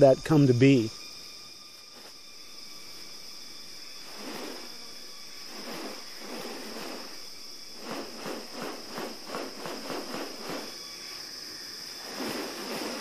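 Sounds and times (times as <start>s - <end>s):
insects droning: 0.0s - 13.0s
short rustling pulses: 4.0s - 11.2s, 12.0s - 13.0s.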